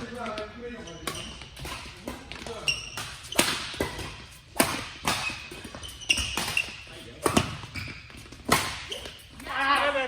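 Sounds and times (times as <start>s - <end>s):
shoe squeaks: 0.4s - 4.5s, 5.1s - 9.4s
racket hitting shuttlecock: 1.0s - 9.2s.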